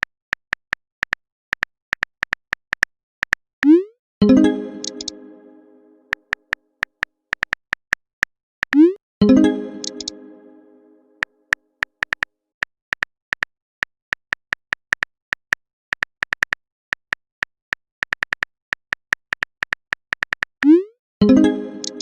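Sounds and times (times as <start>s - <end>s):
typing clicks: 4.4s - 5.2s, 8.6s - 10.2s, 19.7s - 22.0s.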